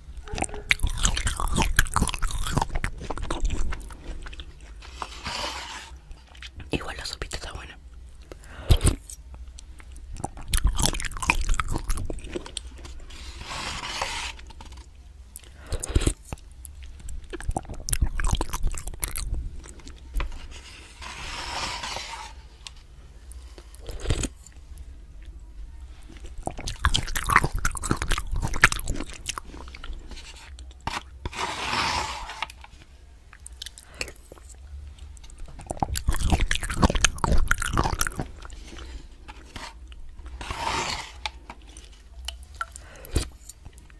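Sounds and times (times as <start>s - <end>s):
person chewing and biting: 0.1s - 22.0s, 23.3s - 25.4s, 26.0s - 32.5s, 33.3s - 43.9s
wet mouth clicks: 0.2s - 4.4s, 6.4s - 12.2s, 15.4s - 20.0s, 26.3s - 30.0s, 35.3s - 38.5s.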